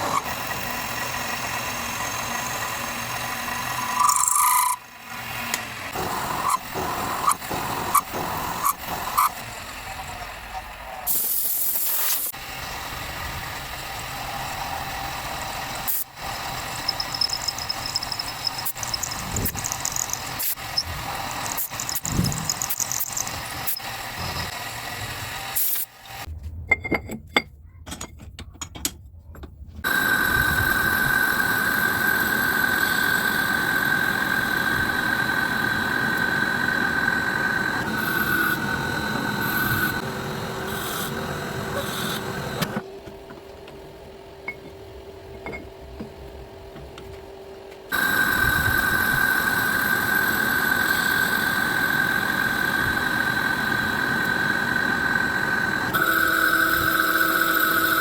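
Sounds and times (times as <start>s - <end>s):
power tool motor whining: 14.8s - 26.3s, 47.9s - 58.0s.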